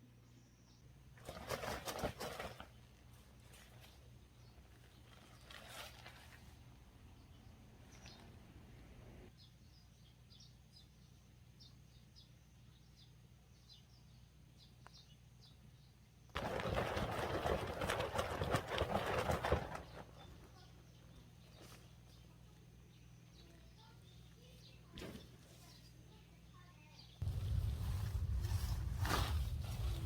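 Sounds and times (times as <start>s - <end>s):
small birds chirping: 7.0s - 8.5s, 9.3s - 16.4s, 19.7s - 29.0s
loud crackling rustle: 27.2s - 30.0s.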